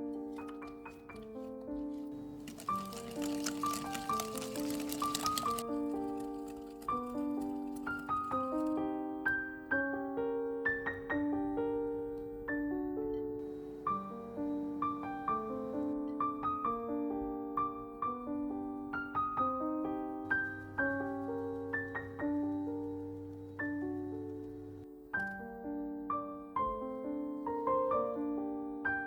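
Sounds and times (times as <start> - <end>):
piano music: 0.0 - 29.0.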